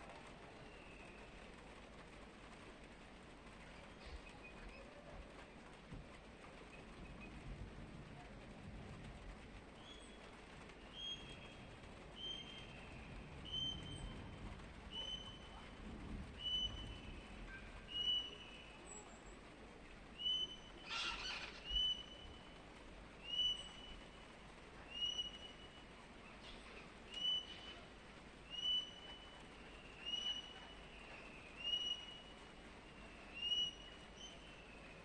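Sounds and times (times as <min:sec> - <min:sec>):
harsh parrot call: 0:20.9 - 0:21.7.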